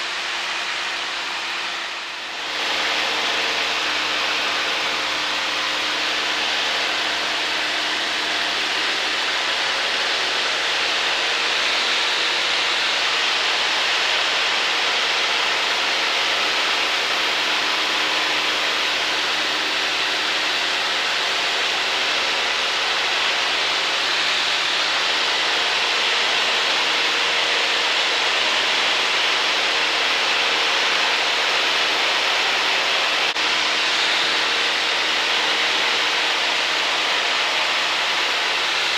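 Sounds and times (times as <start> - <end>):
aircraft engine drone: 0.0 - 26.0.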